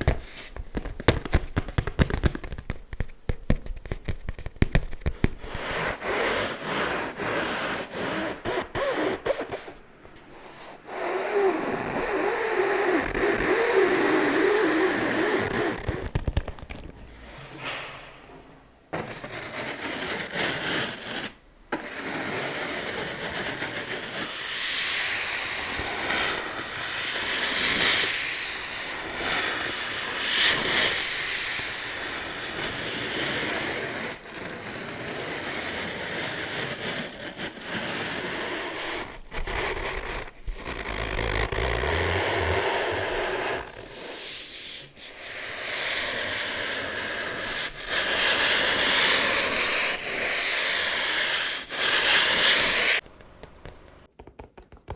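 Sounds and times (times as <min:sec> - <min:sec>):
scratching and rubbing objects: 0:00.0 - 0:18.1, 0:18.9 - 0:54.1.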